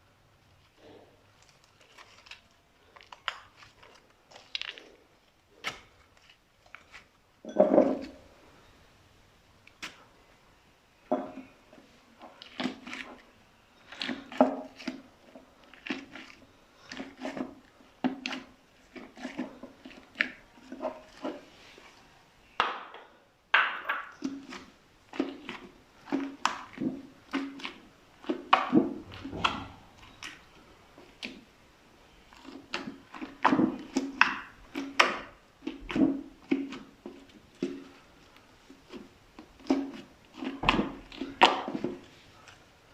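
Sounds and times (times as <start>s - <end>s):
slime squelching and popping: 1.4s - 7.1s, 24.0s - 31.5s.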